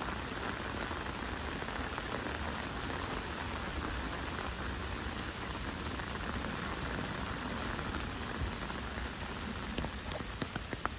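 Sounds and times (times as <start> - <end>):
steady rain falling: 0.0 - 10.9.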